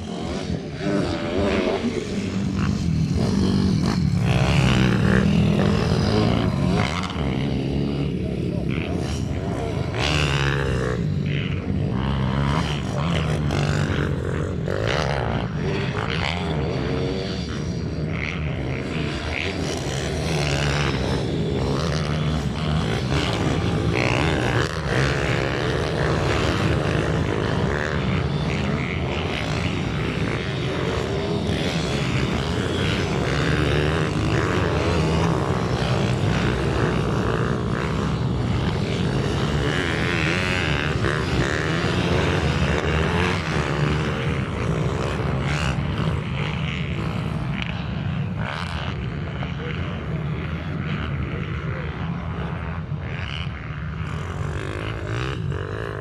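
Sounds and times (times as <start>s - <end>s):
minibike engines buzzing: 0.0s - 56.0s.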